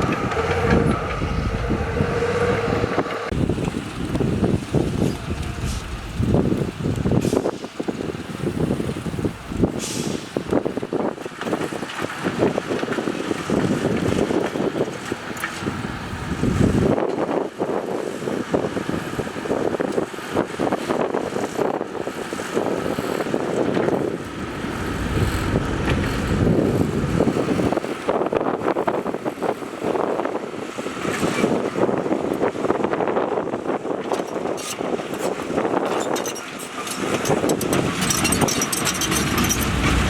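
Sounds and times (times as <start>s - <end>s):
heavy diesel machinery engines: 0.0s - 40.0s.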